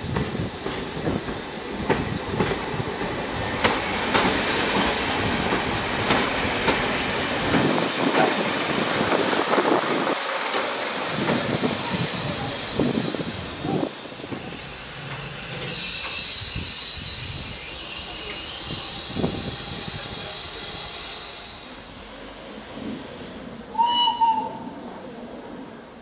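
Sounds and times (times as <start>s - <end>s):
train wheels clicking over rail joints: 0.0s - 20.7s
train hiss and rumble: 0.0s - 26.0s.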